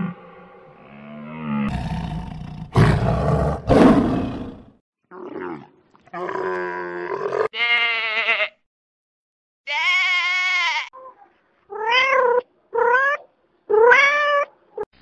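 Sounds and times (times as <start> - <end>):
deer roaring: 0.0 - 4.7.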